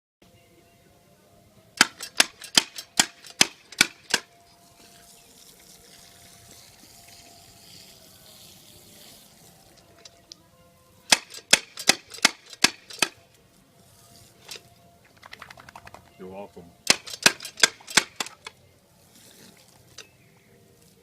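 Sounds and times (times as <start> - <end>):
sharp clicks: 1.8 - 4.3, 11.1 - 13.2, 16.9 - 18.6.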